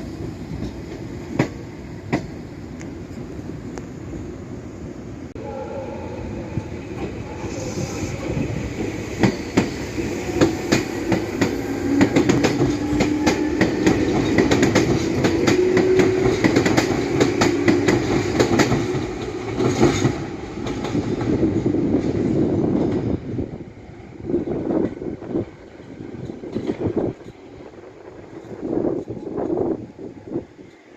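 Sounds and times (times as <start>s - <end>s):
train wheels clacking over rail joints: 8.2s - 22.2s.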